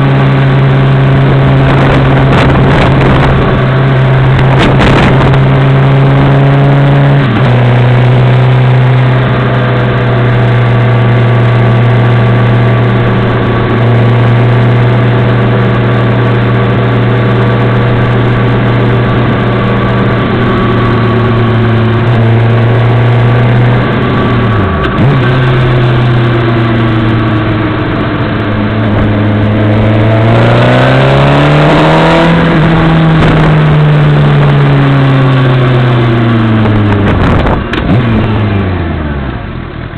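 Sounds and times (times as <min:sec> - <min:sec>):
motorcycle engine droning: 0:00.0 - 0:39.9.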